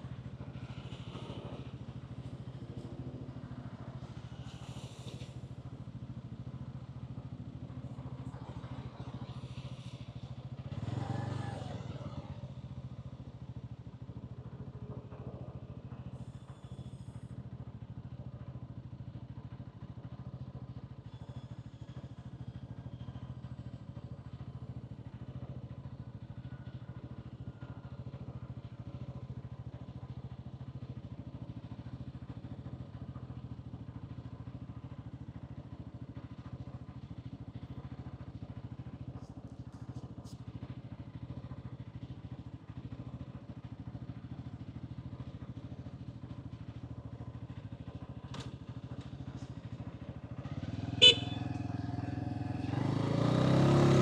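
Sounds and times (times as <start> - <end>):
traffic noise: 0.0 - 12.8, 46.9 - 54.0
motorcycle engine running: 0.0 - 54.0.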